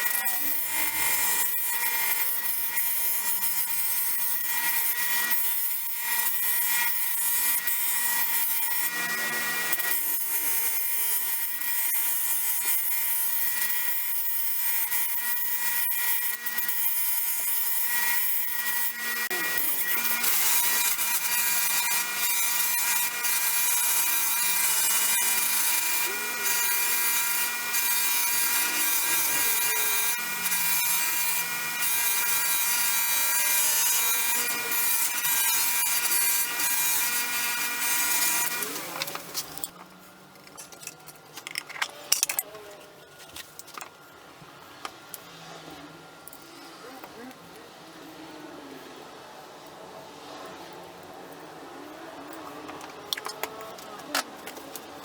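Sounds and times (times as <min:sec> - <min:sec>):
metal grinding on sander belt: 0:00.0 - 0:42.5.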